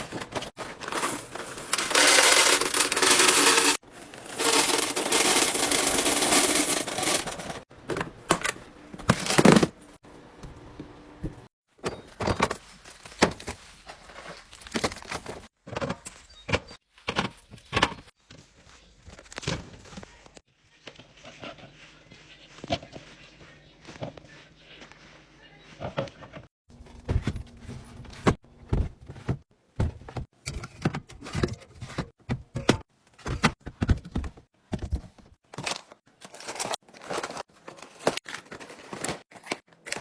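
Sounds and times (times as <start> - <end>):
jars and containers clinking: 0.2 - 7.6.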